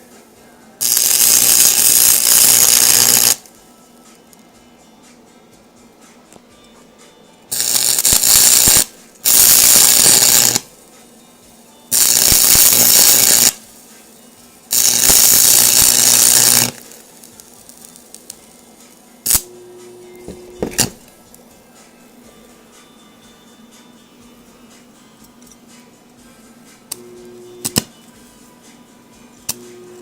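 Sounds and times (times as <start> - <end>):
arc welder crackling sizzle: 0.8 - 3.7, 7.5 - 21.5, 26.9 - 27.9, 29.4 - 30.0
steady tone: 19.3 - 21.1.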